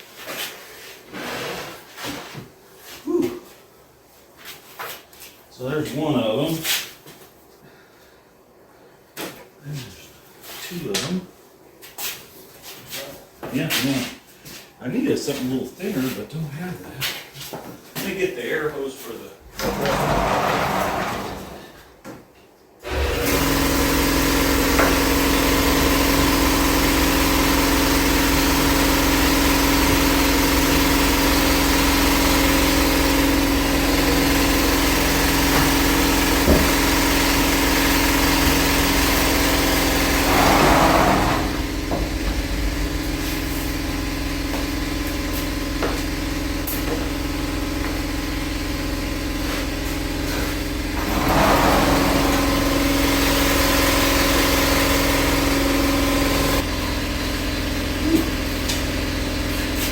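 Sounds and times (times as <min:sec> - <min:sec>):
air compressor running: 0:19.5 - 0:21.8, 0:22.8 - 0:59.9.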